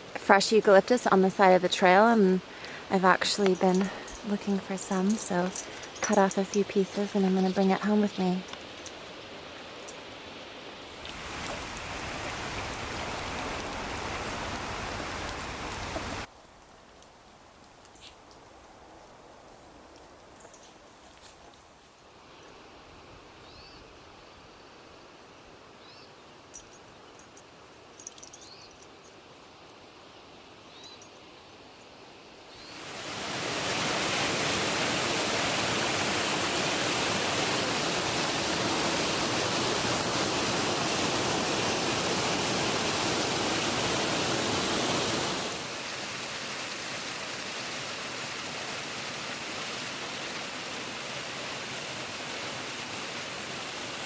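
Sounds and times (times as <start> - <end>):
rush of falling water: 0.0 - 16.4, 32.5 - 54.0.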